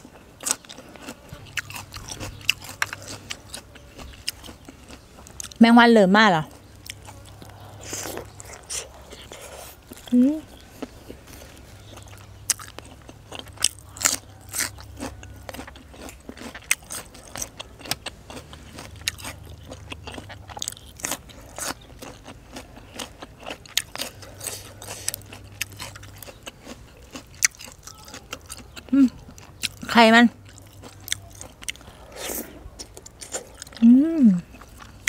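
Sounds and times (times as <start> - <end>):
crunching raw vegetable: 0.0 - 5.6, 6.4 - 35.0.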